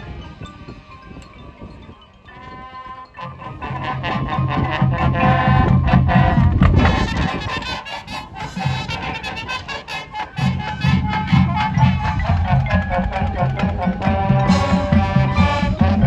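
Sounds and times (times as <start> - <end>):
brass chords: 2.3 - 16.0
steady drum beats: 4.2 - 16.0.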